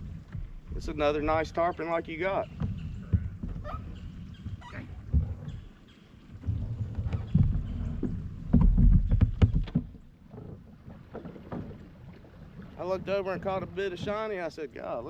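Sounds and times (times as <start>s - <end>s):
low rumbling on microphone: 0.0s - 5.8s, 6.4s - 10.2s
water sloshing around boat: 0.0s - 15.0s
knocks on boat: 6.4s - 11.9s, 12.9s - 14.4s.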